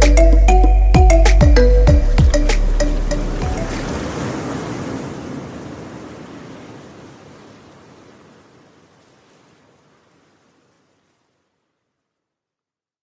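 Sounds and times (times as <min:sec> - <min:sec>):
rushing sea surf: 0:02.1 - 0:11.2.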